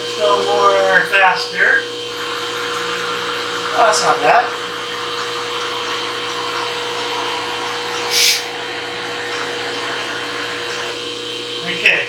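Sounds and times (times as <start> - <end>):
mill motor whine: 0.0 - 12.0
short hiss: 8.1 - 8.5.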